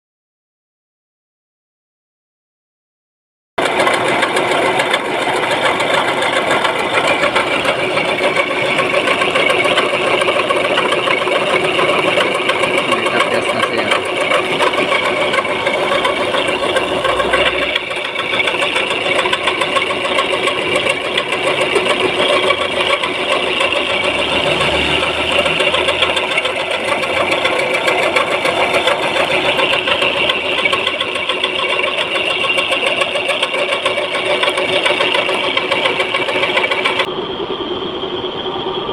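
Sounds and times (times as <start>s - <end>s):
milling machine rattling: 3.6s - 37.1s.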